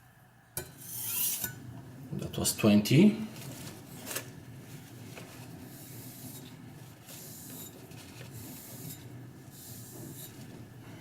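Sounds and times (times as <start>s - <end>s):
knife blade scraping: 0.8s - 1.6s.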